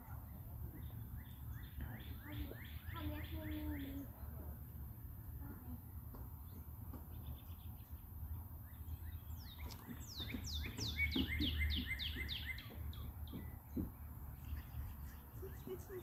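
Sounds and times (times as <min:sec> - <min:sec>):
low steady background rumble: 0:00.0 - 0:16.0
songbird whistling: 0:08.6 - 0:13.6.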